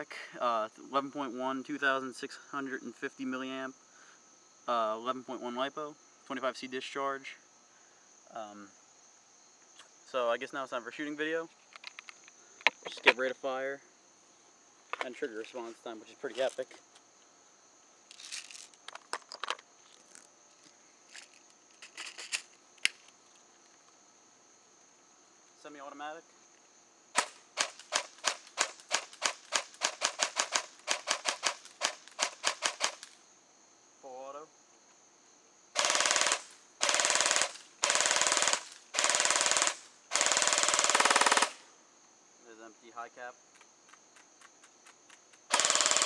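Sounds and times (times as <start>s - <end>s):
crickets chirring: 0.0s - 46.0s
handling noise clicks and rustling: 11.5s - 13.2s, 18.1s - 20.3s, 21.2s - 24.0s
airsoft rifle full-auto bursts: 27.2s - 33.1s, 35.8s - 41.6s, 45.5s - 46.0s.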